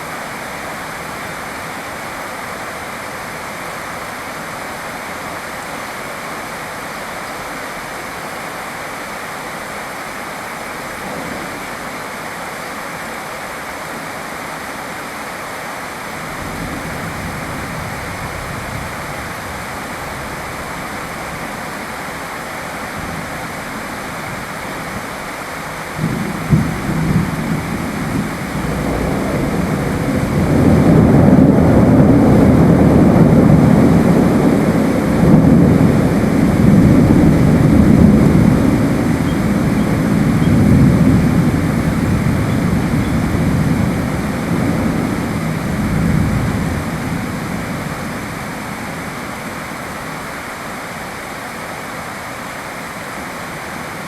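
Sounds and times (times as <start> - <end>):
steady rain: 0.0 - 54.0
thunder cracking and rumbling: 16.3 - 49.2.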